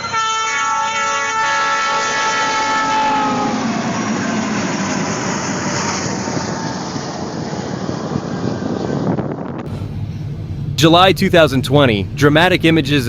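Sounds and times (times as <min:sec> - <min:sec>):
train horn: 0:00.0 - 0:04.7
train passing on rails: 0:00.0 - 0:13.0.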